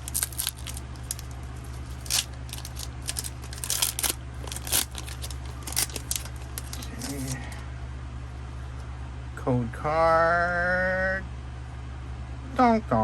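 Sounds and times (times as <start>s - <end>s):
cards being handled: 0.0s - 7.6s
foil wrapper crinkling and tearing: 0.0s - 7.6s.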